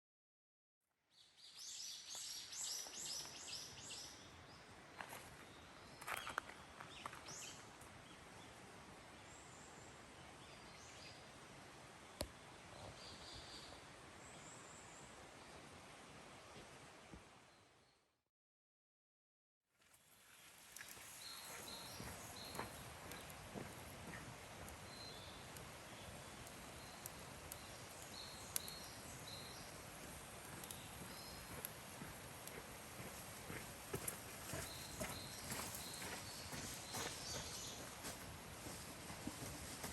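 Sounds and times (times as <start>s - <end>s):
faint outdoor ambience: 1.2s - 18.1s, 19.8s - 39.9s.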